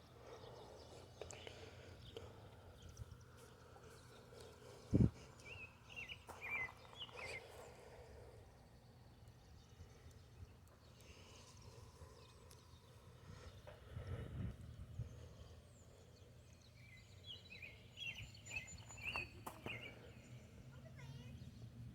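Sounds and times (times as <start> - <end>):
chirping bird calls: 0.0 - 8.3, 15.2 - 21.4.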